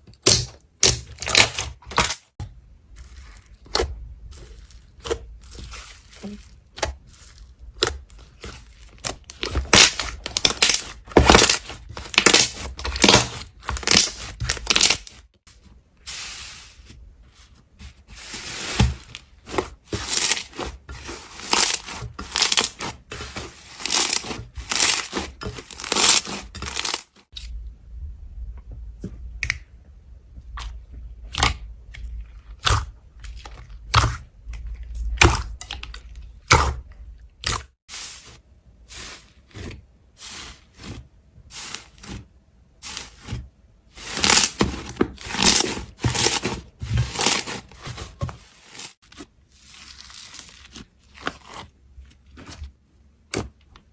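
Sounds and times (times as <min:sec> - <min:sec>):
slime crackling and popping: 0:09.0 - 0:15.1.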